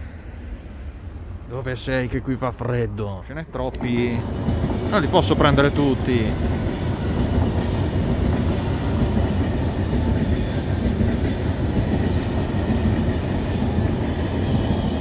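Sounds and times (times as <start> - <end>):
train wheels rumbling on rails: 3.5 - 15.0.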